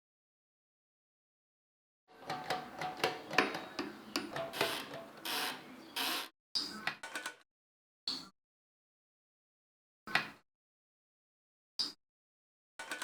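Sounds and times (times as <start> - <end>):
typewriter mechanism clicking: 2.3 - 6.2.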